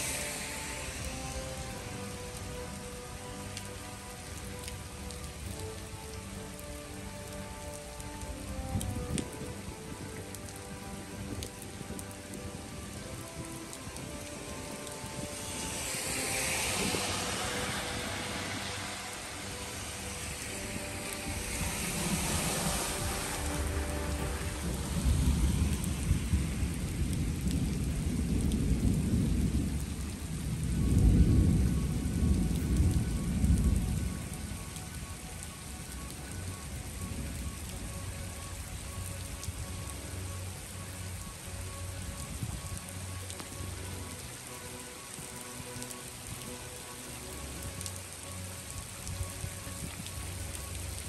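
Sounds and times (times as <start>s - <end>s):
heavy rain on pavement: 0.0s - 51.0s
low rumble: 14.9s - 34.4s.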